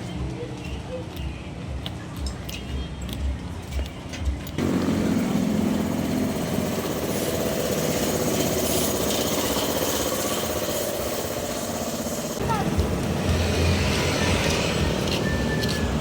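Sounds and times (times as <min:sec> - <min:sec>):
street traffic: 0:00.0 - 0:16.0
vehicle engine running: 0:04.6 - 0:16.0.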